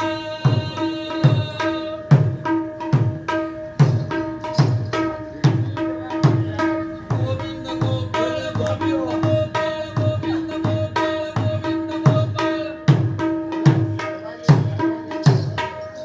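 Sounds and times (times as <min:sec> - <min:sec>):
hand drum played solo: 0:00.0 - 0:15.8.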